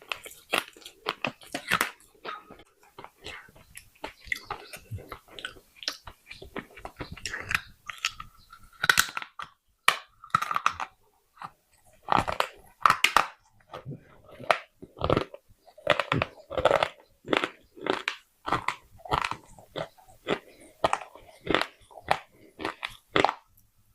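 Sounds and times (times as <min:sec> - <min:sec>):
crunchy chewing: 0:00.0 - 0:23.6.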